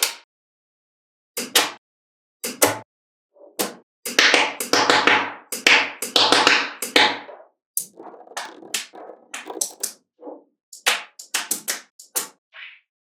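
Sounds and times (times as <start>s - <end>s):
magnetic balls clicking: 7.8s - 9.9s.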